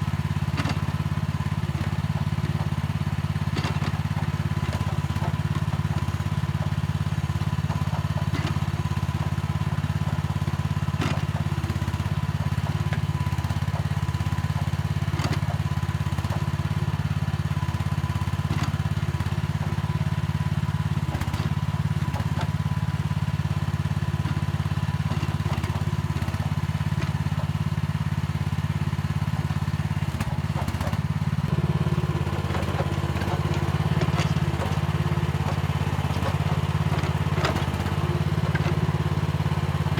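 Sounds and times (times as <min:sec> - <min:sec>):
excavator engine running: 0:00.0 - 0:39.9
light knocks and clatter: 0:00.4 - 0:39.9.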